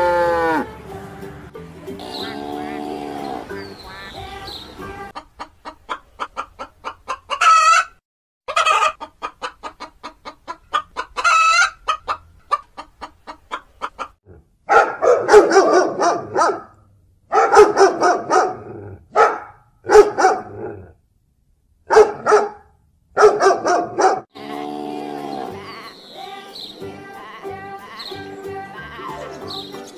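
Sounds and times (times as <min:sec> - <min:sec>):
chickens clucking: 0:02.0 - 0:14.2.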